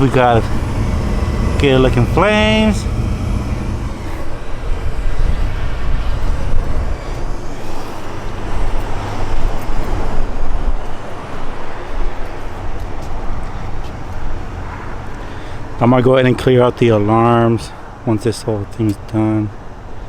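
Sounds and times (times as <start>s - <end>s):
low rumble: 0.0s - 7.8s
burner rushing noise: 0.0s - 9.3s.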